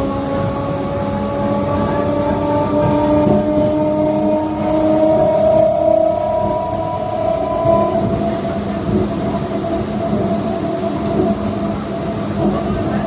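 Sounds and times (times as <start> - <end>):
passenger train rumbling: 0.0 - 13.0
high steady tone: 3.7 - 12.5.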